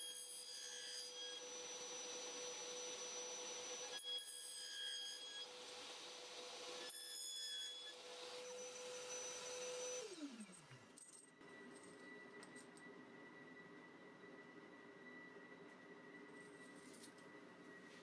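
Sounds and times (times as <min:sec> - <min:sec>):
saw screeching through metal: 0:00.0 - 0:10.3.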